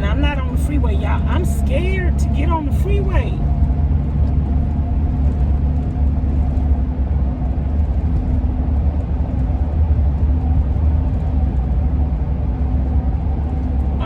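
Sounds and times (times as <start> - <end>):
road and engine rumble: 0.0 - 14.0
roof rack howling in wind: 0.0 - 14.0.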